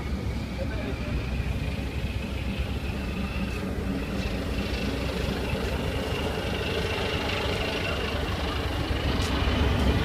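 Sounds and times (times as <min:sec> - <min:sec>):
low rumble of running machinery: 0:00.0 - 0:10.0.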